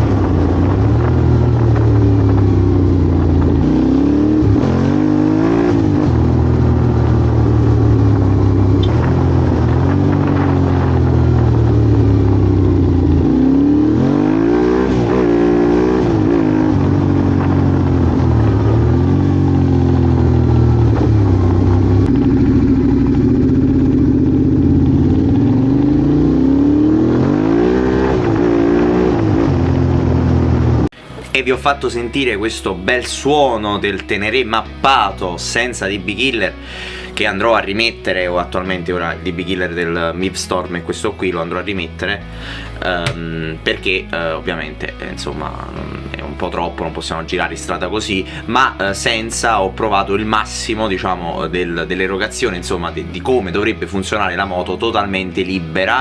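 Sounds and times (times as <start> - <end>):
motorcycle engine revving: 0.0 - 31.1, 41.8 - 43.8.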